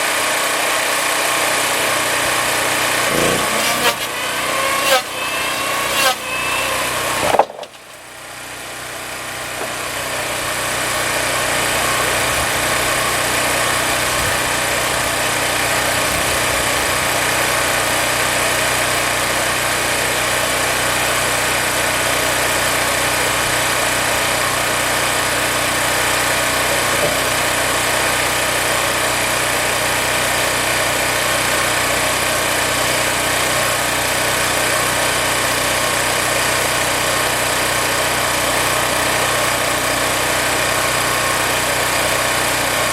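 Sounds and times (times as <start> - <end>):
shop machine running: 1.2 - 30.2.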